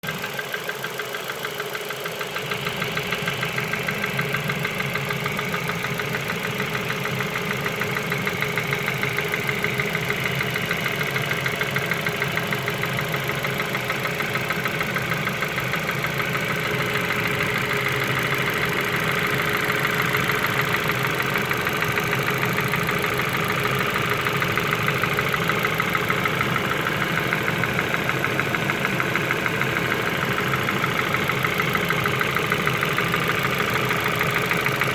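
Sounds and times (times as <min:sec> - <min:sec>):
car engine idling with knock: 0:00.0 - 0:34.9.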